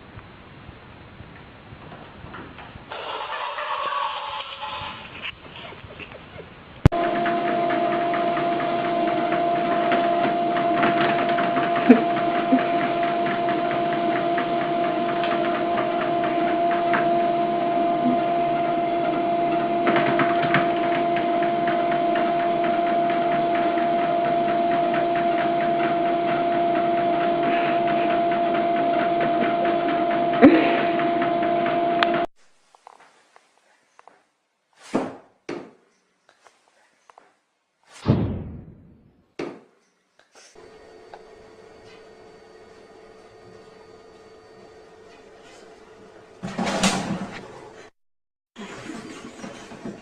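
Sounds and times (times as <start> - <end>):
steady mechanical hum: 5.8 - 32.3, 40.5 - 47.9.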